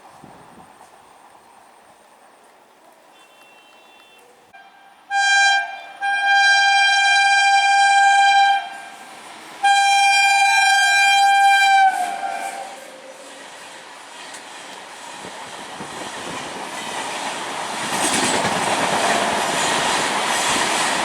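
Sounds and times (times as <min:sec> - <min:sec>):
train horn blasts: 0:03.1 - 0:13.2.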